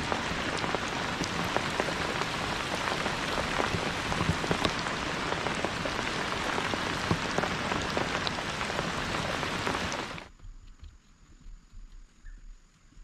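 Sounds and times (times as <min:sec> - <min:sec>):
steady rain falling: 0:00.0 - 0:10.4.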